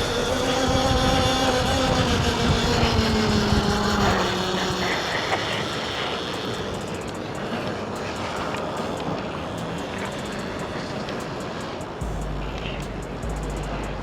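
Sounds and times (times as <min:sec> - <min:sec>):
electric motor whining: 0:00.0 - 0:14.0
wind rush on microphone: 0:00.0 - 0:14.0.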